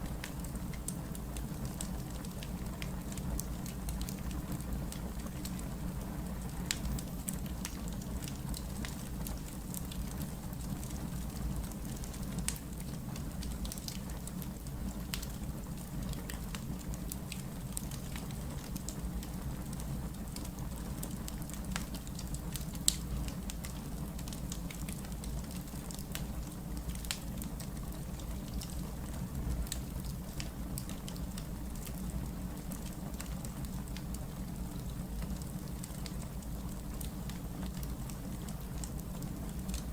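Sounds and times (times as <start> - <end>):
low rumble of burning logs: 0.0 - 39.9
wood fire crackling and popping: 0.0 - 39.9.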